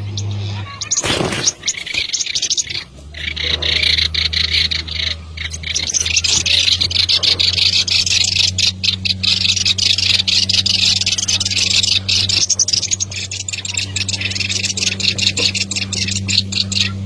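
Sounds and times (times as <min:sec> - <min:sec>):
high-pitched animal chorus: 0:00.0 - 0:17.0
steady low hum: 0:00.0 - 0:17.0.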